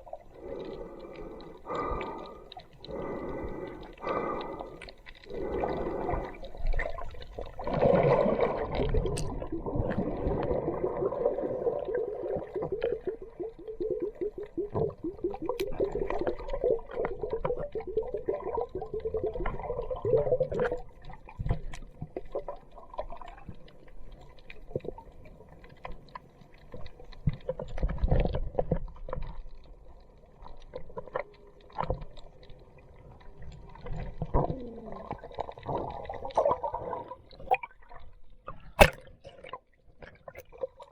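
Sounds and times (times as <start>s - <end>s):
water gurgling and bubbling: 5.2s - 21.3s, 34.0s - 37.9s, 38.7s - 39.6s
water sloshing: 38.8s - 39.6s.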